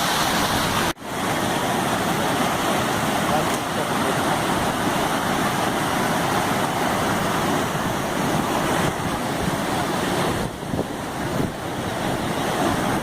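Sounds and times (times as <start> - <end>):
water rushing over dam spillway: 0.0 - 13.0.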